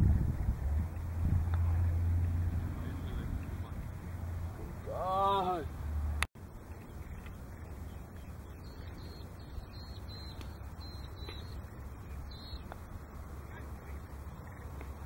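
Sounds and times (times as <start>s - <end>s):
wind rumble on microphone: 0.0s - 5.1s.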